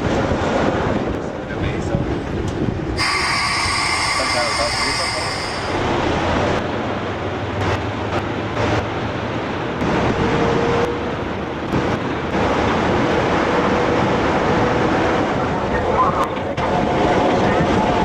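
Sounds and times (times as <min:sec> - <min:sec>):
train rumbling: 0:00.0 - 0:18.0
faint thin squeal: 0:03.0 - 0:05.8.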